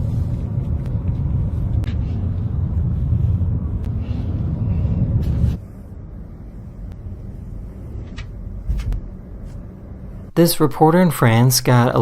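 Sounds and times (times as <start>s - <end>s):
vehicle driving rumble: 0.0s - 10.3s.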